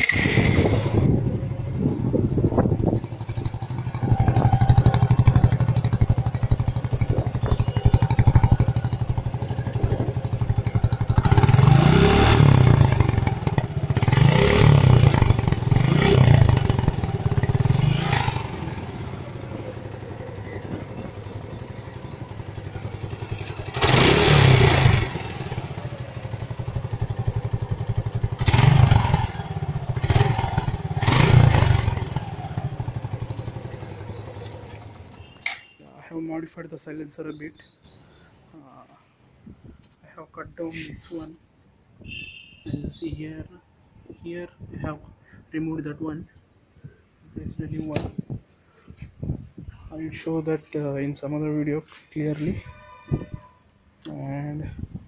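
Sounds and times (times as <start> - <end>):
motorcycle engine idling and revving: 0.0 - 39.6, 40.5 - 43.9.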